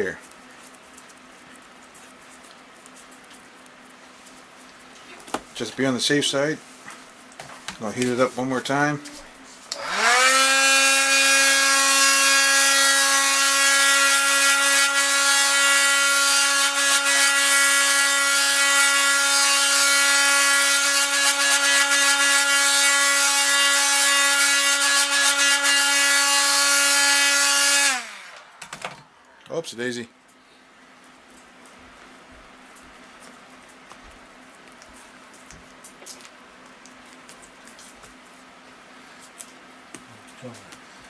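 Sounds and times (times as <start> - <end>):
hot-air blower whine: 7.7 - 29.6.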